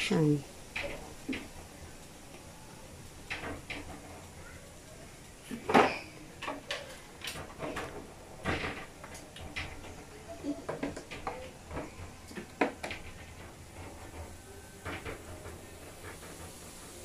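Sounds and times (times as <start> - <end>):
small objects knocking and clicking: 3.1 - 4.4.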